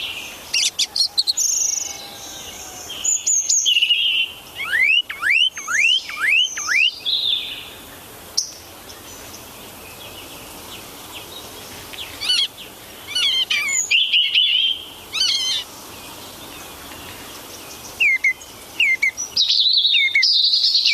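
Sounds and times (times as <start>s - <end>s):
bird chirping: 0.0s - 7.7s, 8.4s - 20.9s.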